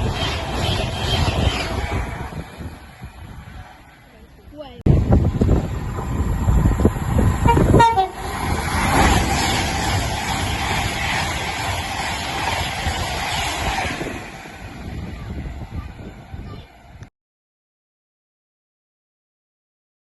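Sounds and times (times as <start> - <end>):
train rushing past: 0.0 - 17.0
train horn: 7.4 - 8.3.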